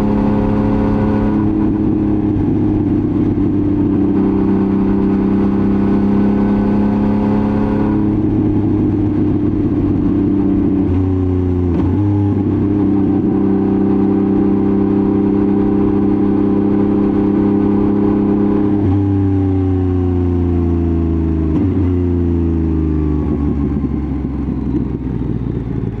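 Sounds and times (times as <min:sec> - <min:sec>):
motorcycle engine under load: 0:07.6 - 0:26.0.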